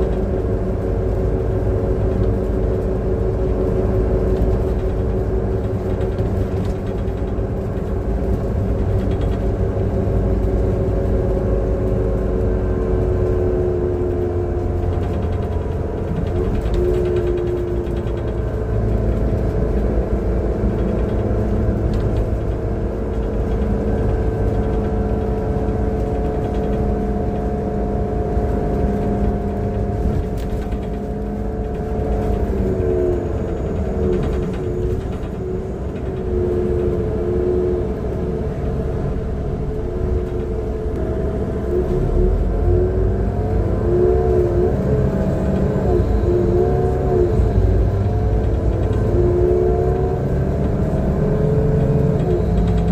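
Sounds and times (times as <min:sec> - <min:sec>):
bus engine rumble and whine: 0:00.0 - 0:52.9.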